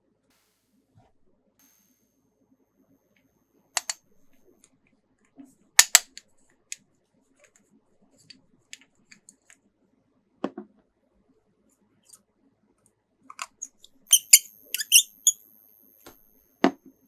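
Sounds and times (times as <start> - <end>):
plastic clicks and snaps: 3.8 - 4.0, 5.8 - 6.1.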